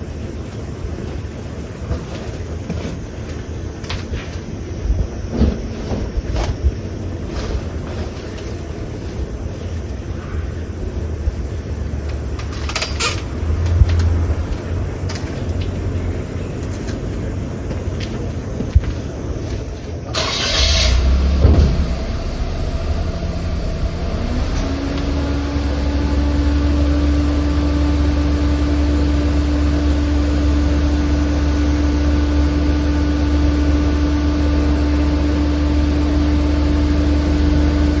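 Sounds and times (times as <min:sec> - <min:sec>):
engine humming: 0:00.0 - 0:38.0
higher rising tone: 0:21.1 - 0:27.2.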